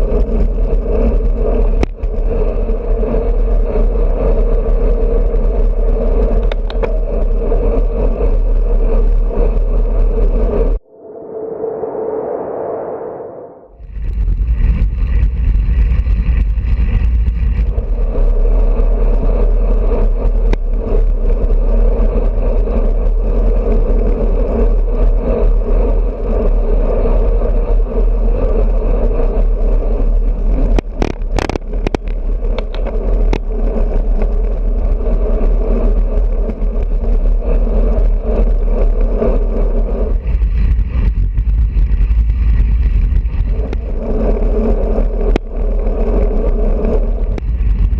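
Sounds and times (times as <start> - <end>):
sharp clicks and rattles: 0.0 - 10.8, 29.4 - 39.4, 40.0 - 47.9
wind buffeting microphone: 0.0 - 11.1, 13.8 - 47.9
road noise: 0.0 - 47.9.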